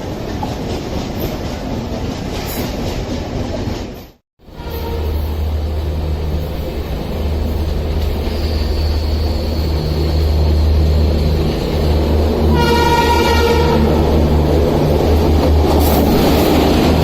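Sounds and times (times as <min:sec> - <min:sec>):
train rumbling: 0:00.0 - 0:17.0
train horn: 0:04.4 - 0:05.6, 0:12.4 - 0:14.2.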